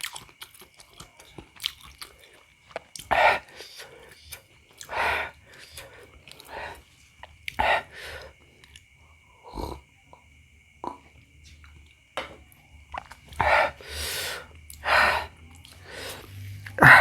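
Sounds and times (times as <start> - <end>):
person breathing hard: 3.1 - 6.9, 7.5 - 8.4, 13.3 - 17.0.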